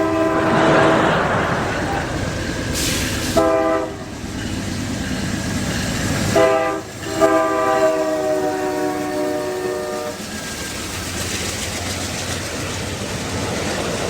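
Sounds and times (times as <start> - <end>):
locomotive air horn: 0.0 - 1.6, 2.8 - 4.0, 6.3 - 10.2
passing train rumbling: 0.0 - 14.0.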